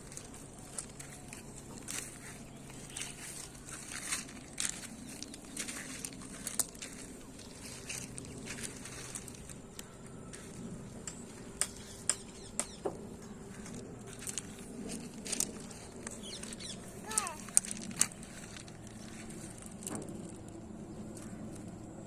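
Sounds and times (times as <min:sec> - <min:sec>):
small stones clicking together: 0:14.1 - 0:20.5.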